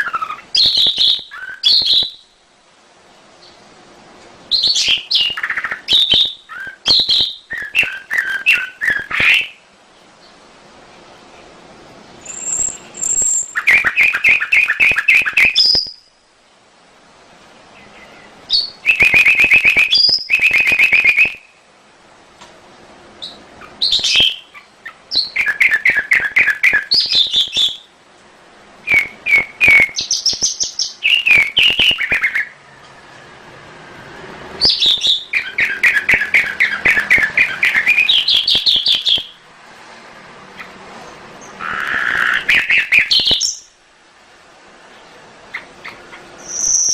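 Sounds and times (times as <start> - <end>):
canary singing trills: 0.0 - 2.4, 4.5 - 10.4, 12.1 - 16.3, 17.6 - 21.6, 23.2 - 28.0, 28.8 - 33.1, 34.5 - 39.4, 41.4 - 43.8, 45.0 - 46.9.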